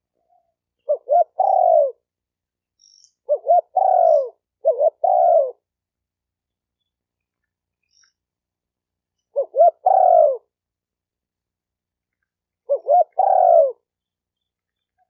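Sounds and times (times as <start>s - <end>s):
dove cooing: 0.2s - 2.1s, 3.3s - 5.7s, 9.3s - 10.5s, 12.7s - 13.9s.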